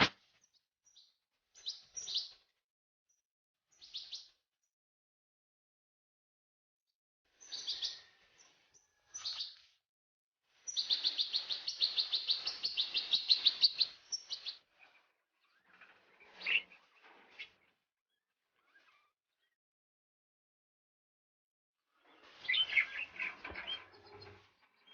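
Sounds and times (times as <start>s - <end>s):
goldfinch singing: 22.4s - 24.9s.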